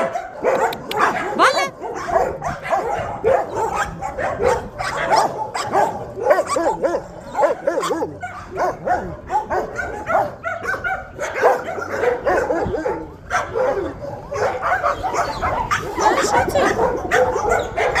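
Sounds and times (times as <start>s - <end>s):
dog yipping and whining: 0.5s - 1.7s, 13.6s - 18.0s.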